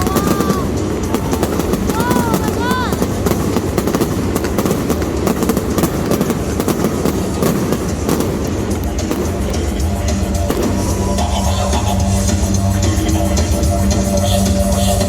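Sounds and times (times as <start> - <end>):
low rumble of bursting shells: 0.0 - 11.8
fireworks crackling: 0.0 - 15.0.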